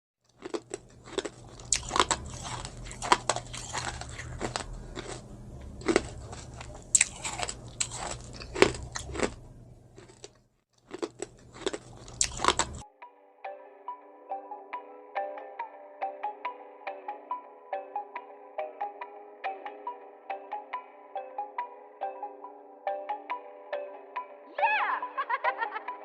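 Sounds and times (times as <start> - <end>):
crunchy food crunches: 0.3 - 12.8
person chewing: 0.3 - 12.8.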